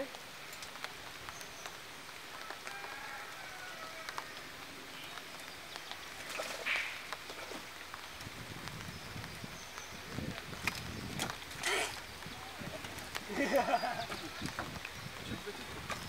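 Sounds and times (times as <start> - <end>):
light rain pattering on water: 0.0 - 16.0
bird calling: 3.8 - 7.5.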